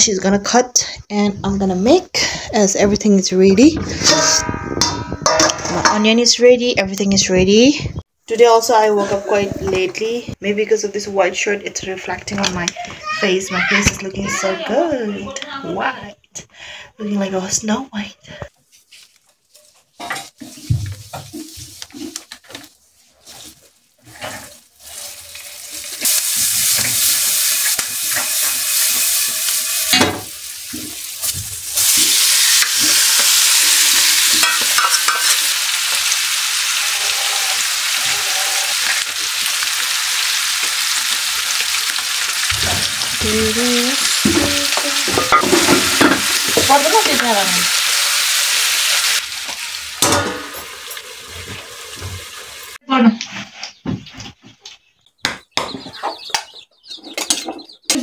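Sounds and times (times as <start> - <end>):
food sizzling in hot oil: 18.9 - 52.8.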